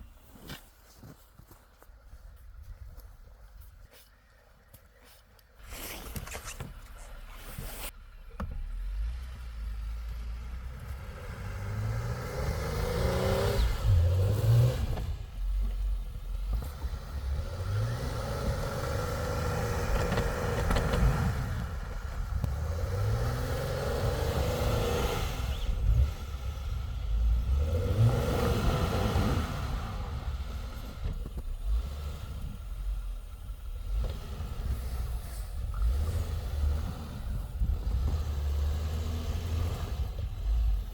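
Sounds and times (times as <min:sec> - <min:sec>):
engine revving: 0:08.4 - 0:40.9.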